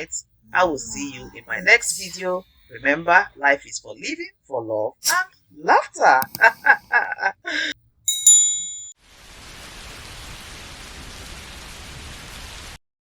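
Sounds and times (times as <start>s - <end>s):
bright bell ding: 8.1s - 9.0s
rain-like hiss: 9.0s - 12.8s.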